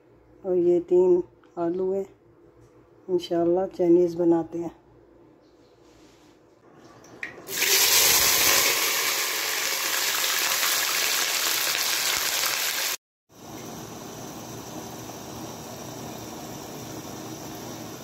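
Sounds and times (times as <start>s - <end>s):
onions sizzling in hot oil: 7.5s - 18.0s.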